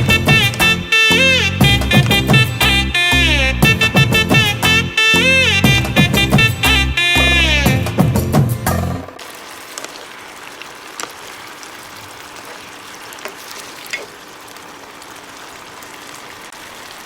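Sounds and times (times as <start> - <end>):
small pops: 0.0 - 0.9, 9.2 - 16.9
curry sizzling in a pan: 0.0 - 2.9, 9.2 - 17.0.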